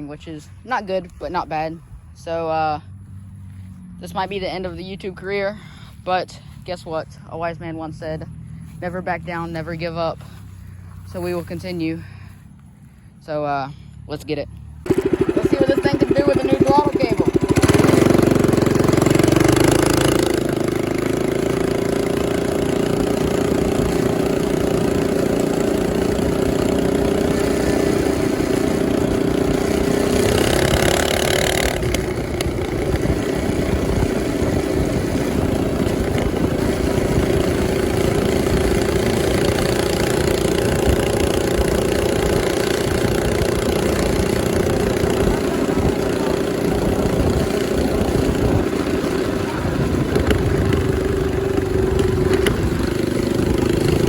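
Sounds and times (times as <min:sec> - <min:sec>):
mini bike engine running: 0:00.0 - 0:12.4, 0:13.4 - 0:54.0.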